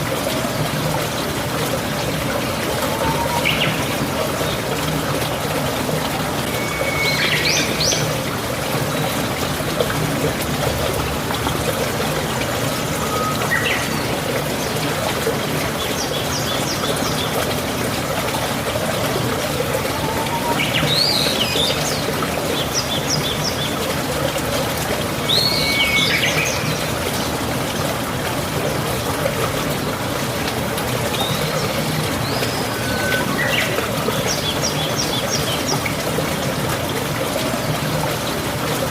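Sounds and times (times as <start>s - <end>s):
water trickling: 0.0s - 38.9s
birds chirping: 31.1s - 35.8s.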